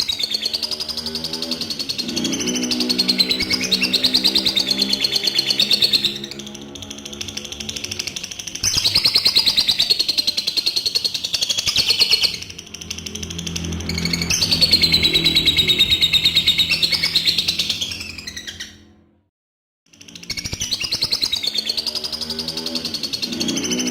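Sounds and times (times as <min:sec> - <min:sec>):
bird chattering trill: 0:00.0 - 0:18.8.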